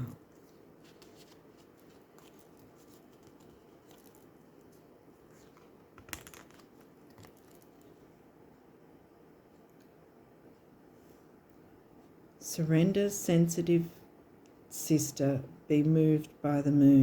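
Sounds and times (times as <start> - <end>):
cards being handled: 0.3 - 7.9.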